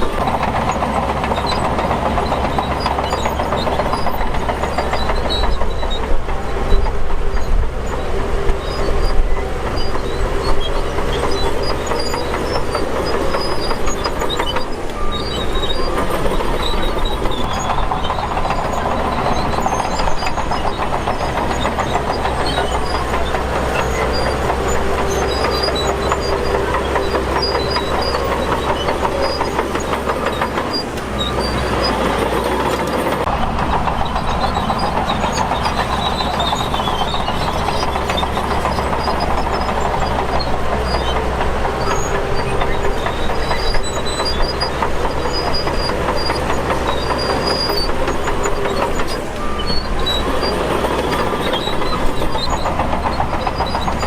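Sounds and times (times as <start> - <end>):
bulldozer diesel engine under load: 0.0 - 54.0
steel tracks clanking: 0.0 - 54.0.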